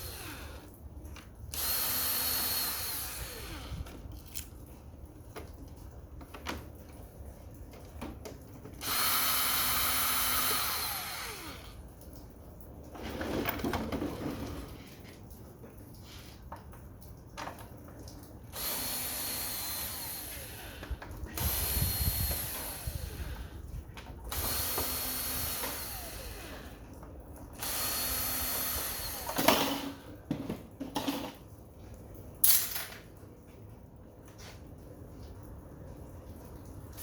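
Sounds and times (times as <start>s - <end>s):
cordless drill running: 0.0s - 0.7s, 1.5s - 3.9s, 8.8s - 11.8s, 18.5s - 23.5s, 24.3s - 26.8s, 27.6s - 30.0s.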